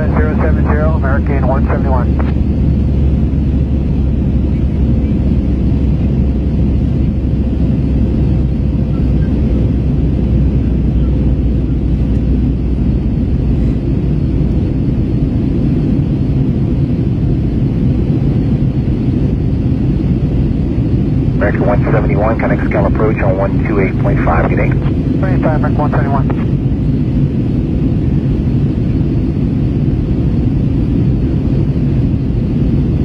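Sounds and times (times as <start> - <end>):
faint steady hum: 0.0 - 5.4, 21.3 - 26.7
aircraft cabin drone: 0.0 - 33.0.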